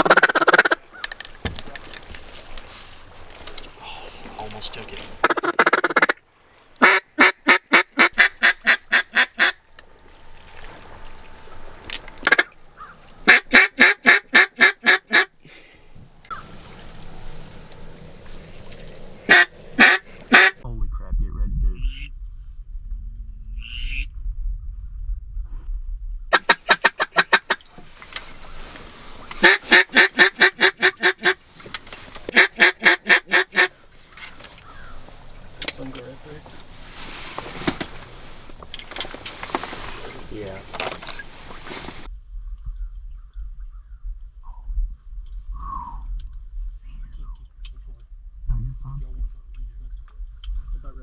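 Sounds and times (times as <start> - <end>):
duck call quacks: 0.0 - 0.8, 5.2 - 6.2, 6.8 - 9.6, 12.2 - 12.5, 13.2 - 15.3, 19.2 - 20.6, 26.3 - 27.6, 29.4 - 31.4, 32.3 - 33.8
wind rumble on microphone: 15.9 - 26.3, 33.8 - 51.0.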